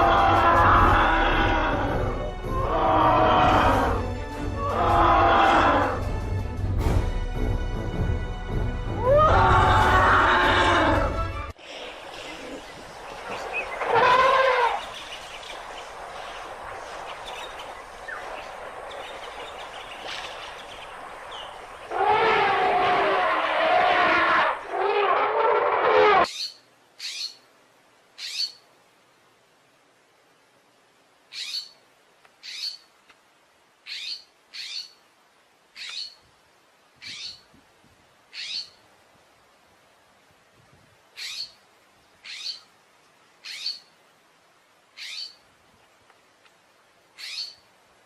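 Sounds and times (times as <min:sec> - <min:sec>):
steady outdoor hiss: 0:00.0 - 0:48.0
animal high-pitched calls: 0:13.8 - 0:14.9
faint bird chirps: 0:33.8 - 0:35.0, 0:43.4 - 0:44.0, 0:45.0 - 0:45.5, 0:47.2 - 0:47.7.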